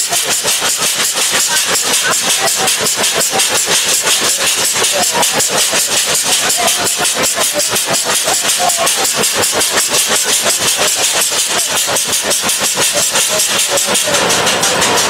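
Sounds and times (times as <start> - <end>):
loud hiss: 0.0 - 15.0
train passing with rapid beat: 0.0 - 15.0.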